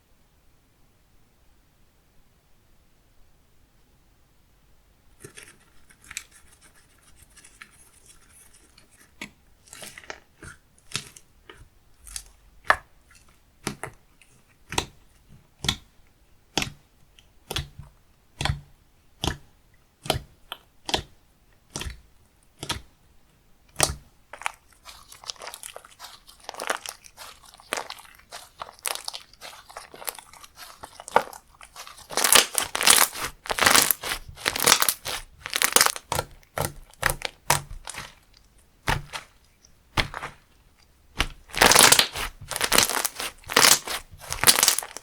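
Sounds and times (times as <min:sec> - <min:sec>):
slime squished by hand: 0:09.1 - 0:15.9, 0:17.4 - 0:22.9, 0:23.7 - 0:45.0.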